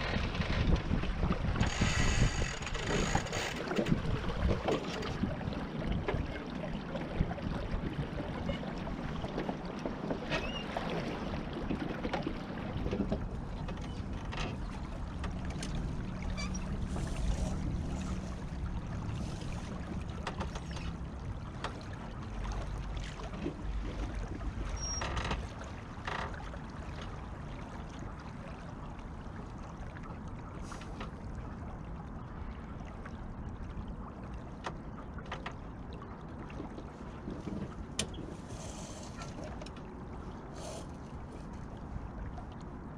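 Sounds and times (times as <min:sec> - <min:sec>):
water rushing: 0:00.0 - 0:30.8.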